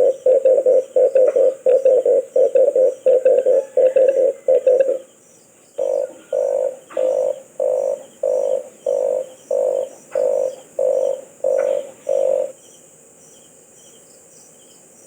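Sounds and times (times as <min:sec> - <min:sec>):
dove cooing: 0:00.0 - 0:05.1, 0:05.8 - 0:12.6.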